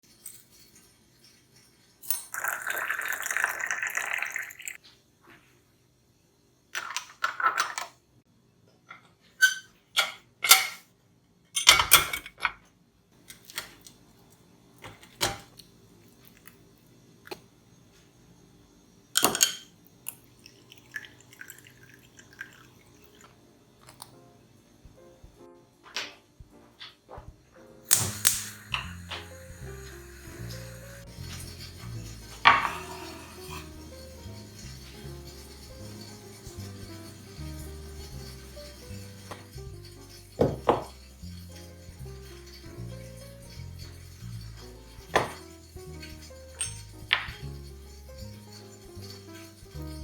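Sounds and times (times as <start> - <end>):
running water: 1.8 - 4.8, 20.3 - 23.4, 27.9 - 47.6
dishes and utensils clinking: 8.9 - 10.9, 11.5 - 12.6, 19.2 - 19.7, 27.9 - 50.0.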